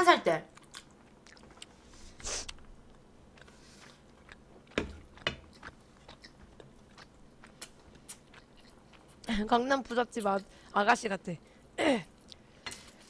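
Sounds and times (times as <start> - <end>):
chewing rice: 0.5 - 9.3.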